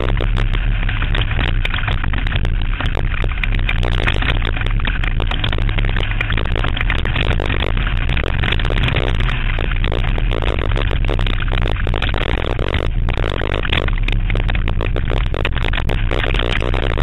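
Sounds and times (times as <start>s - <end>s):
race car engine roaring: 0.0s - 17.0s.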